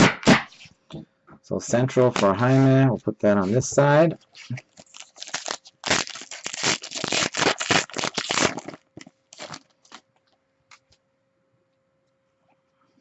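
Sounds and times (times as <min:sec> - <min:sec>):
trading cards shuffling: 0:01.8 - 0:10.0.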